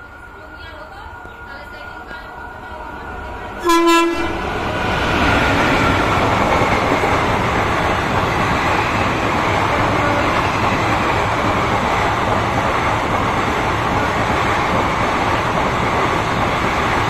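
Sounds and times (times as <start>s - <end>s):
train coaches rushing past: 0.0s - 17.0s
train horn blast: 3.6s - 4.5s, 9.7s - 10.4s.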